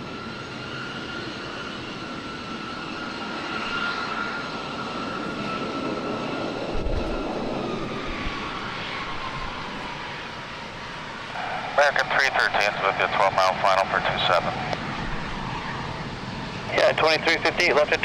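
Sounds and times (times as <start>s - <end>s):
jet engines whining: 0.0s - 18.0s
brief low thump: 6.7s - 9.9s.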